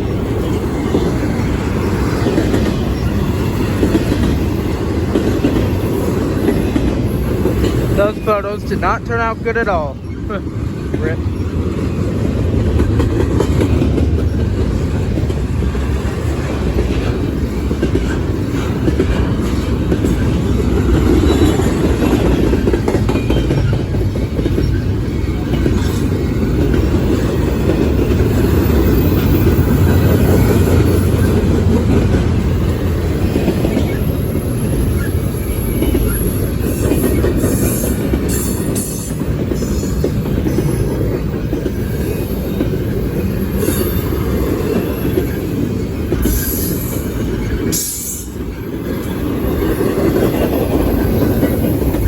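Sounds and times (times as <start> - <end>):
wheels clacking over rail joints: 0.0 - 52.0
high wheel squeal: 46.2 - 49.8.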